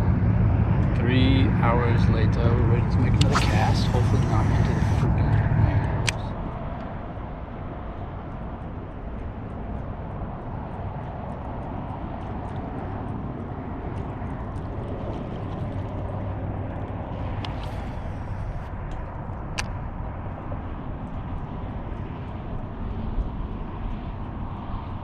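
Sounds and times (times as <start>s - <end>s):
outdoor rumble and hiss: 0.0s - 9.5s, 13.0s - 25.0s
sharp click: 3.2s - 5.0s, 6.0s - 6.3s.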